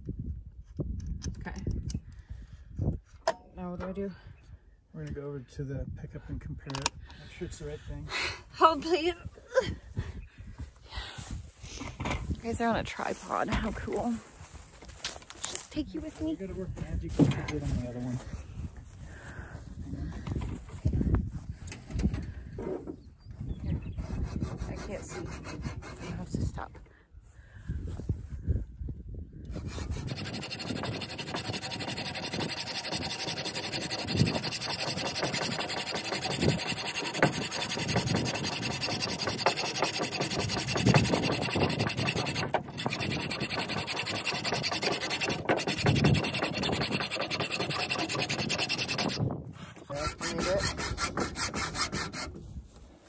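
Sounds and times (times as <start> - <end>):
saw blade cutting metal: 29.5 - 49.2, 49.9 - 52.3.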